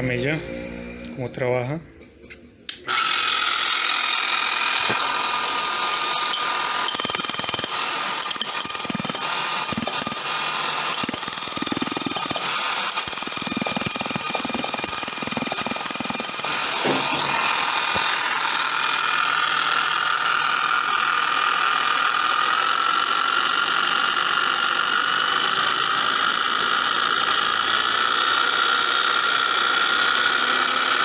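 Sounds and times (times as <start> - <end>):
demolition hammer motor whining: 2.8 - 31.0
rapid hammering blows: 6.4 - 18.2.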